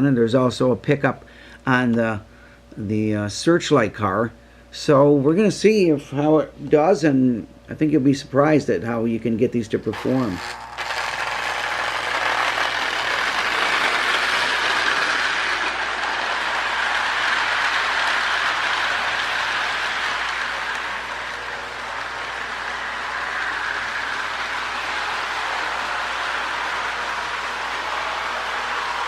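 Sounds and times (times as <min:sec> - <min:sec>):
toy train whirring on track: 0:09.9 - 0:29.0.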